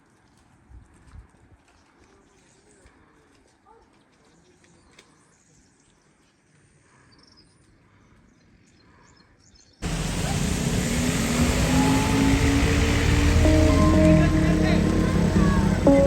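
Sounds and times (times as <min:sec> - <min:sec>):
faint outdoor ambience: 0:09.8 - 0:16.0
loud steady rushing noise: 0:09.8 - 0:16.0.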